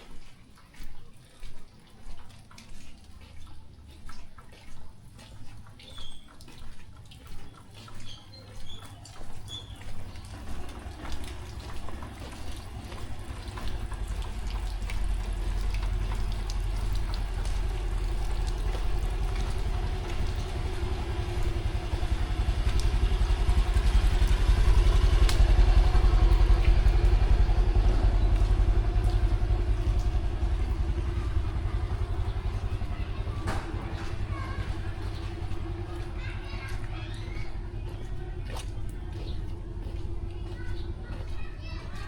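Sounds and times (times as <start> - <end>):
vehicle passing: 10.1 - 42.0.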